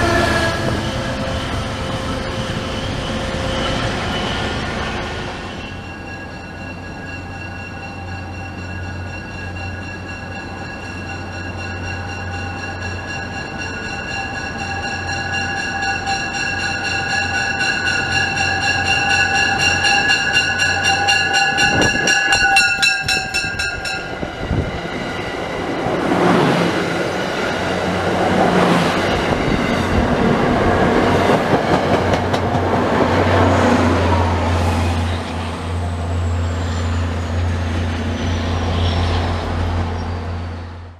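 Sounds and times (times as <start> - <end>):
train air horn: 0.0 - 4.1, 17.2 - 24.2
coaches rumbling over rails: 0.0 - 40.9
diesel locomotive drone: 0.0 - 40.9.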